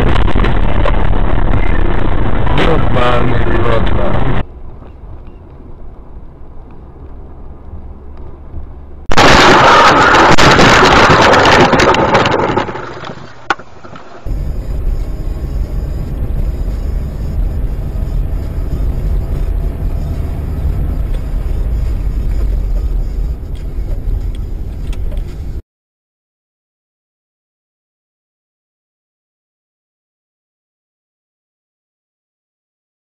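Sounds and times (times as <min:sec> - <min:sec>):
loud rushing noise: 0:00.0 - 0:04.4, 0:09.1 - 0:12.8
car driving rumble: 0:00.0 - 0:25.6.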